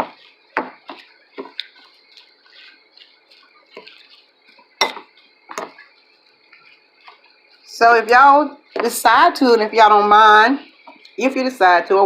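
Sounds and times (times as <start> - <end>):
cutlery clinking against a plate: 4.8 - 5.8.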